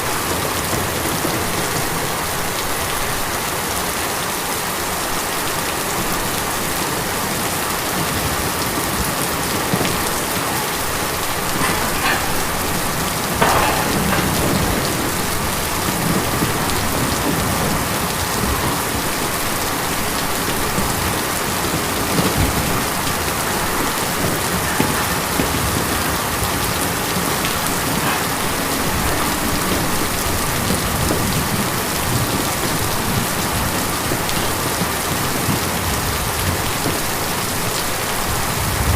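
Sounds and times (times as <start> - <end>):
rain on a tin roof: 0.0 - 38.9.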